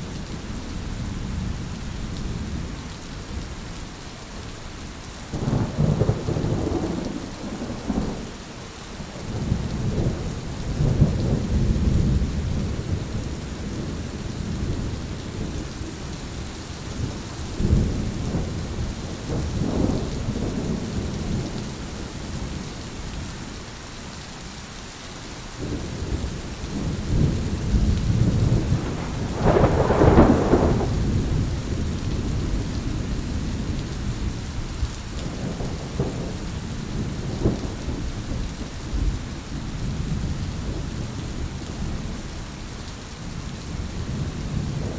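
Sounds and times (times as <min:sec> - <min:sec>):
steady rain: 0:00.0 - 0:44.9
rumbling thunder: 0:05.3 - 0:22.6, 0:25.6 - 0:42.2, 0:43.7 - 0:44.9.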